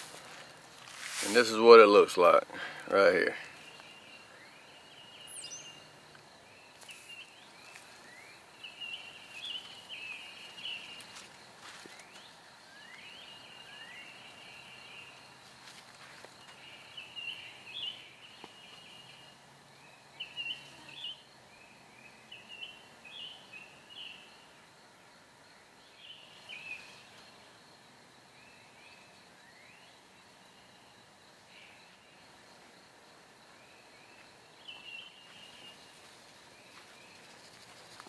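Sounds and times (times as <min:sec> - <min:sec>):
birds chirping: 0:01.2 - 0:15.4, 0:16.1 - 0:24.5, 0:33.4 - 0:38.0.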